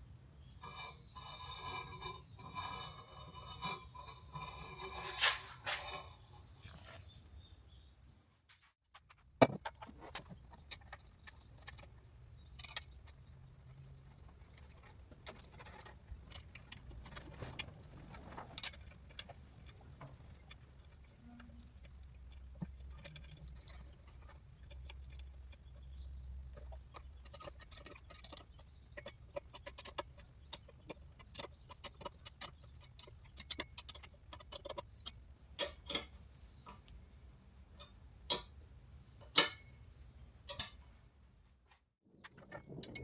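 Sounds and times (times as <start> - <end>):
hard parts clicking and knocking: 8.9 - 36.9.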